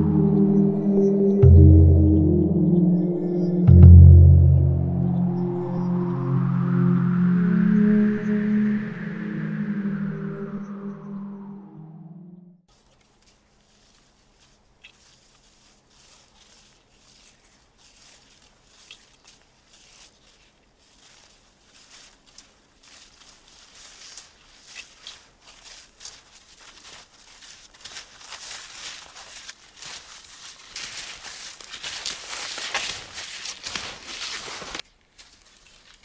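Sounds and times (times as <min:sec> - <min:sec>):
footsteps in snow: 0:12.8 - 0:36.0.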